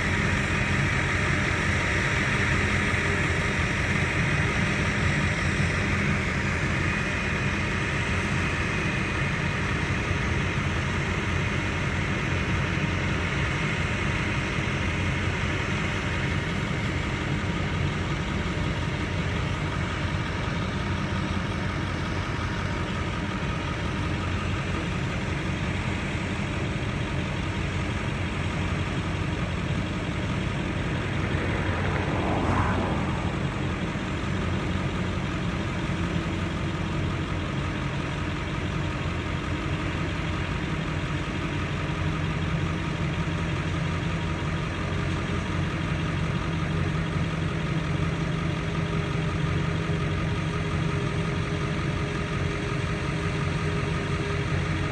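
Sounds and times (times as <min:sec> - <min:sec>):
heavy machinery engine running: 0:15.0 - 0:41.9
whine rising and falling: 0:29.8 - 0:35.3.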